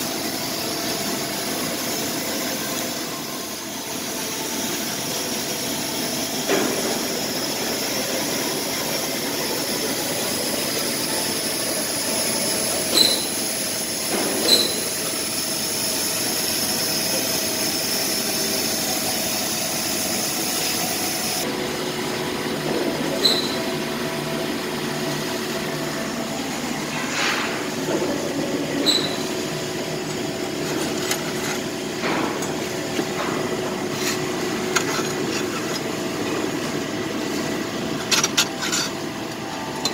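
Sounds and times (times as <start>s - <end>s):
laser cutter hiss and hum: 0.0s - 21.5s, 22.9s - 30.4s.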